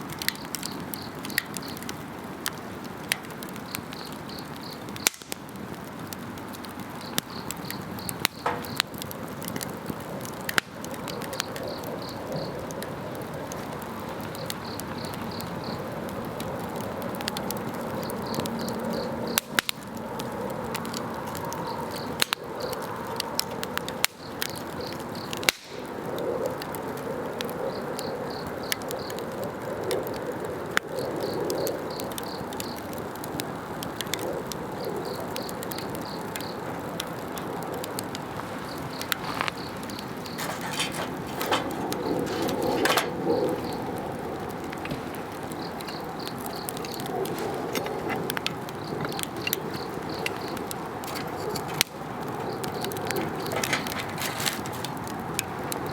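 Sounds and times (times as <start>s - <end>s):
campfire crackling and popping: 0.0s - 55.9s
insects chirping in trills: 0.4s - 1.8s, 11.0s - 16.5s, 37.4s - 54.8s.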